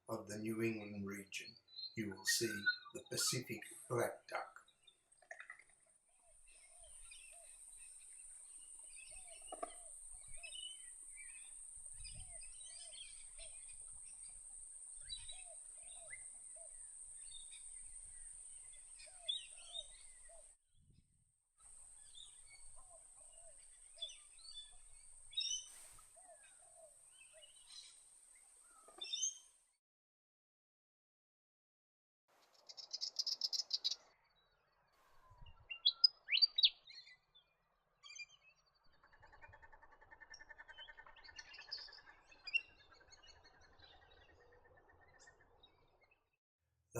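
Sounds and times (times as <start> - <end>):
short low bird calls: 0.0 - 4.6
birds chirping: 0.0 - 20.5, 21.6 - 29.5, 35.2 - 37.2.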